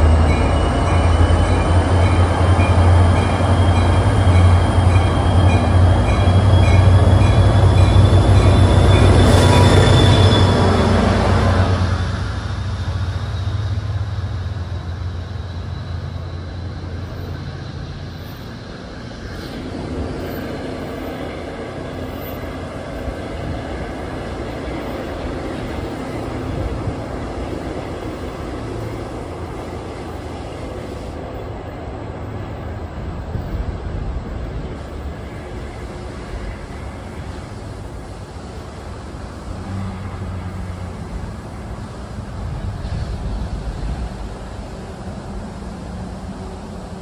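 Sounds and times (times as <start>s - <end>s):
train passing: 0.0s - 47.0s.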